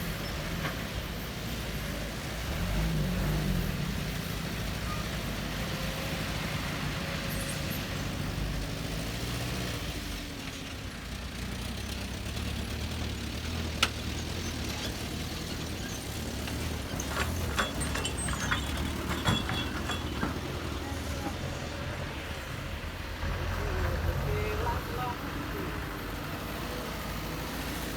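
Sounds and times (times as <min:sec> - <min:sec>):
heavy machine engine running: 0:00.0 - 0:27.9
clacks and knocks: 0:13.5 - 0:21.6.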